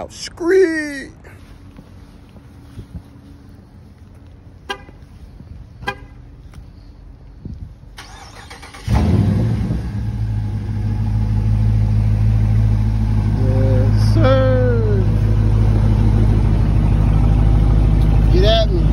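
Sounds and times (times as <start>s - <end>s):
car horn chirps: 4.6s - 5.1s, 5.8s - 6.3s
car engine starting and idling: 5.8s - 18.9s.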